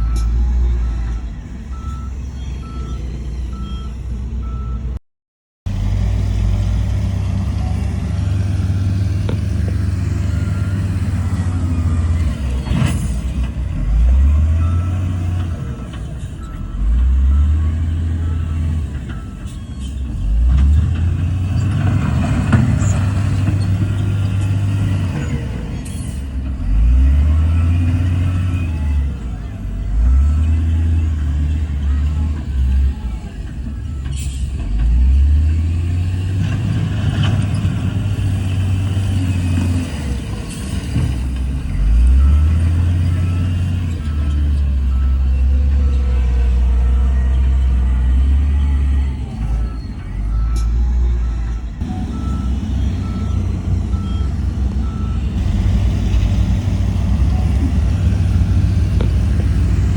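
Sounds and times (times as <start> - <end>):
reversing alarm beeping: 0.0 - 4.9, 8.6 - 20.4, 41.6 - 59.9
diesel machinery engines revving: 0.0 - 5.0, 5.7 - 59.9.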